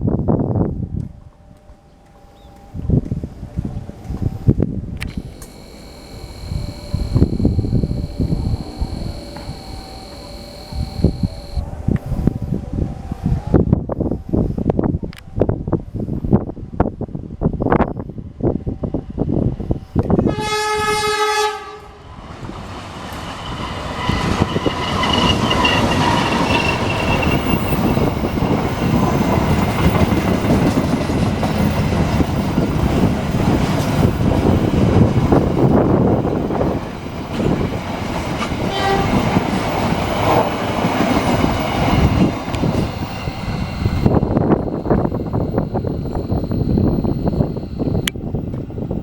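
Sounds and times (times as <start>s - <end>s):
train horn blast: 20.2s - 22.1s, 38.6s - 40.4s
faint wheel squeal: 23.2s - 30.8s.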